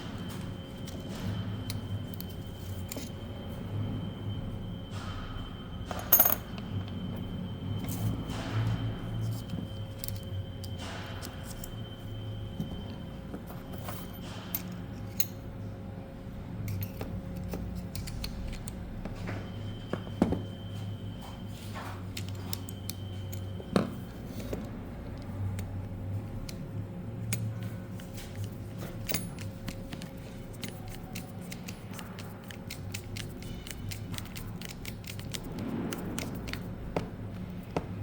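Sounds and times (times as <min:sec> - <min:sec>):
steady low hum: 0:00.0 - 0:38.0
small parts clicking and tapping: 0:16.7 - 0:19.1, 0:27.2 - 0:36.7.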